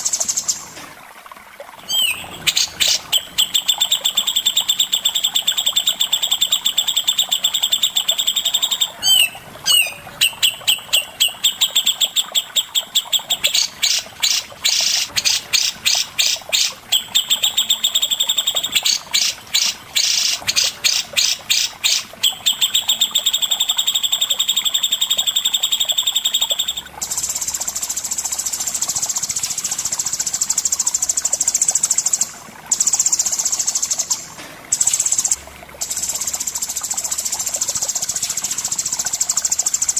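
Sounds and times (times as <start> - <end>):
songbird singing rapid high notes: 1.9 - 27.8.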